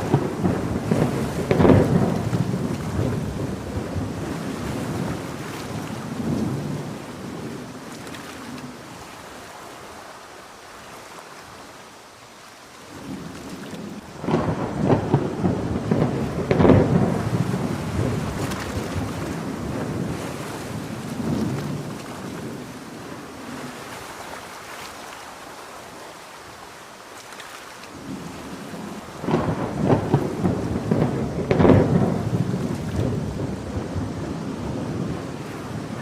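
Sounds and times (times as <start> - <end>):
sharp thunder cracks: 0.0 - 7.4, 13.8 - 22.7, 29.2 - 36.0
thunder rolling: 0.0 - 7.7, 13.0 - 23.1, 28.0 - 36.0
steady rain: 0.0 - 36.0.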